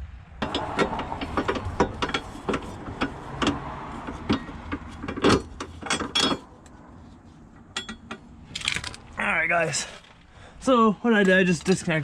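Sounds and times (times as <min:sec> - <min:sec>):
hand tools clicking and clanking: 0:00.4 - 0:06.8, 0:07.6 - 0:09.1.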